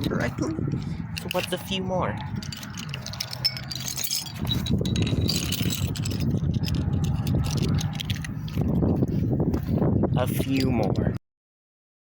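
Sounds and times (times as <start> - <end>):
metal bottle caps clinking: 0.0 - 8.8.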